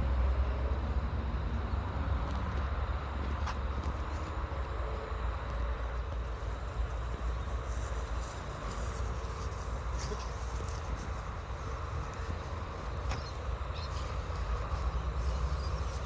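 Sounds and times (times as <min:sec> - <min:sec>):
outdoor background rumble: 0:00.0 - 0:16.0.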